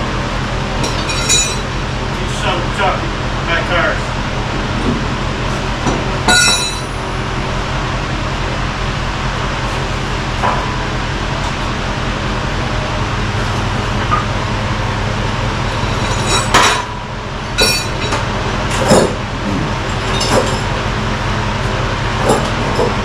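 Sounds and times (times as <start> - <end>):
vehicle engine running: 0.0 - 23.0
metal clanks and rattles: 0.8 - 1.7, 15.7 - 17.0, 19.9 - 20.7.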